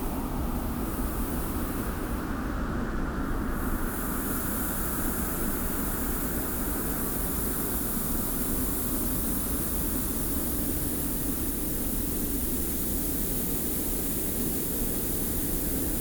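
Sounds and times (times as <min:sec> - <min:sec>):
hiss of blowing sand: 0:03.5 - 0:16.0.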